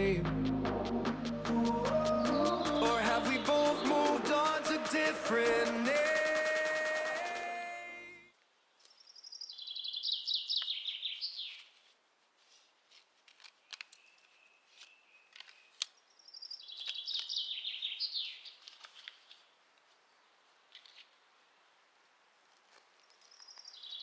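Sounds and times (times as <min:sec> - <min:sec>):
songbird singing: 0:00.0 - 0:06.2, 0:09.0 - 0:11.7, 0:14.0 - 0:18.6
sharp chirps and clicks: 0:00.0 - 0:07.5.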